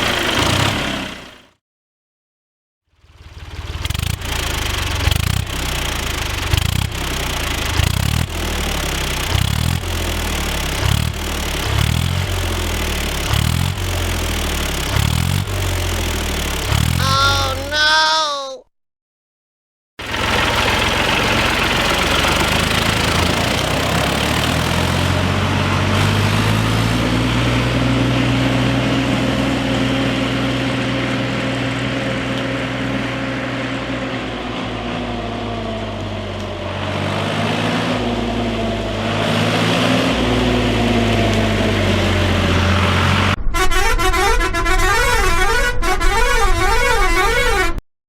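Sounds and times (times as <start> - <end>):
droning horn-like vehicle tone: 43.4 - 47.8.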